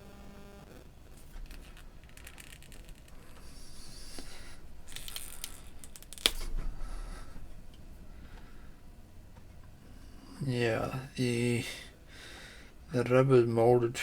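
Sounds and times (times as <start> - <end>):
small clicks and scraping: 1.1 - 4.3, 4.9 - 6.6.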